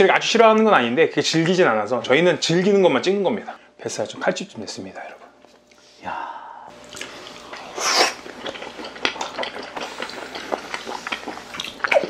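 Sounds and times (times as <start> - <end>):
people chewing wetly: 6.7 - 12.0.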